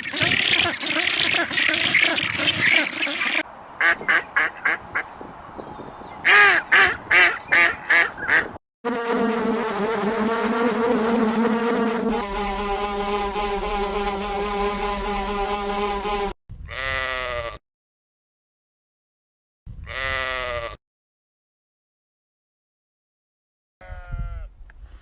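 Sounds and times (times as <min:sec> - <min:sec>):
duck quacking: 0:00.0 - 0:08.6
flying insect buzzing: 0:03.8 - 0:16.4
sheep bleating: 0:16.7 - 0:17.6, 0:19.9 - 0:20.8, 0:23.8 - 0:24.5.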